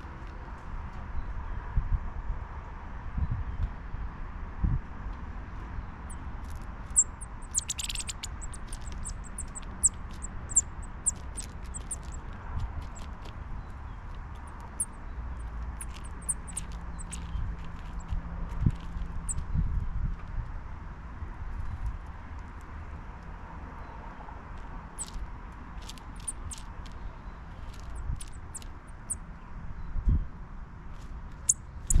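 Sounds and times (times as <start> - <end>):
sparrows chip calls: 6.1 - 19.4, 24.9 - 25.2, 25.8 - 29.3, 31.3 - 32.0.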